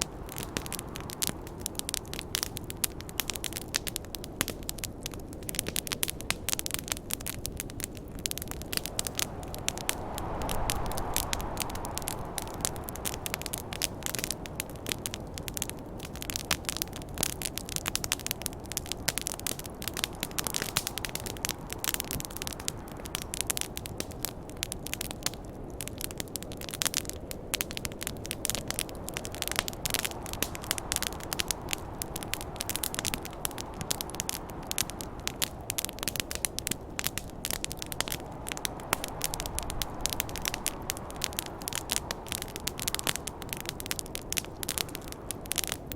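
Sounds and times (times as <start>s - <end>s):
wood fire crackling and popping: 0.0s - 45.9s
low rushing noise: 8.3s - 15.2s, 38.3s - 41.4s.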